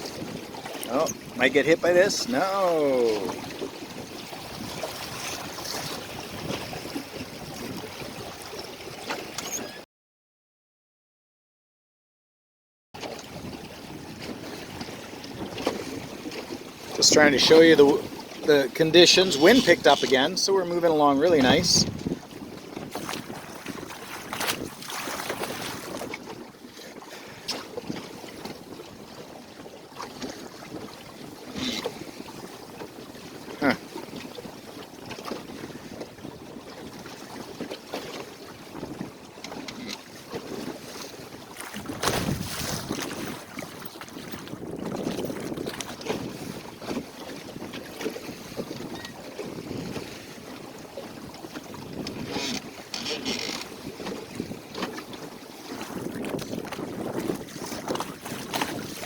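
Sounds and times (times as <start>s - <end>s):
wind buffeting the microphone: 0.0s - 8.5s, 21.2s - 53.0s, 53.7s - 59.0s
water rushing along a boat hull: 0.0s - 9.8s, 13.0s - 59.0s
water slaps: 22.9s - 26.1s, 41.0s - 44.5s.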